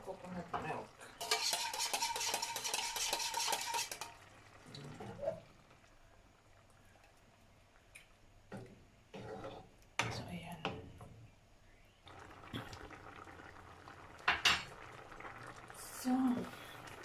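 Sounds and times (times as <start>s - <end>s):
metal spoon scraping a pot: 1.2s - 4.2s, 9.1s - 9.7s.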